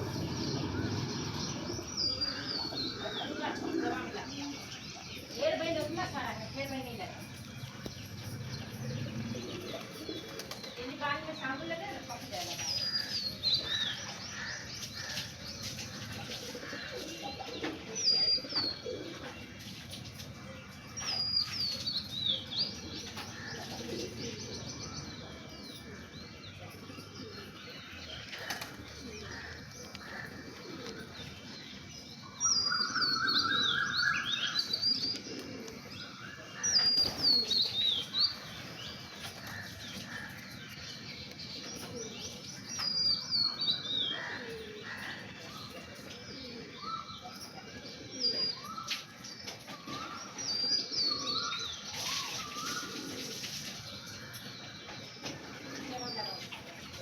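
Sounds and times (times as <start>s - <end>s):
pigeons cooing: 0.0s - 5.1s, 7.6s - 11.4s, 13.0s - 20.0s, 22.4s - 31.9s, 32.6s - 40.5s, 41.5s - 57.0s
wings flapping: 9.7s - 10.9s.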